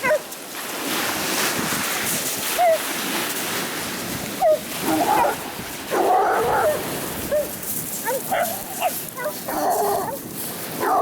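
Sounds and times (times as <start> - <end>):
small dogs yipping and barking: 0.0 - 0.3, 2.5 - 2.9, 4.4 - 10.2, 10.8 - 11.0
sea surf: 0.0 - 11.0.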